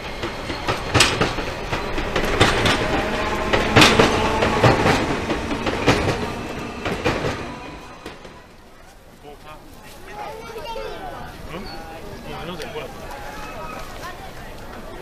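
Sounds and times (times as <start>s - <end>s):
train wheels clacking over joints: 0.0s - 8.9s
train running rumble: 0.0s - 9.6s.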